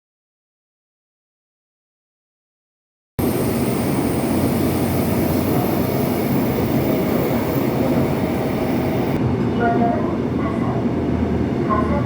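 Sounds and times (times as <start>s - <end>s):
train wheels rumbling on track: 3.2s - 9.4s.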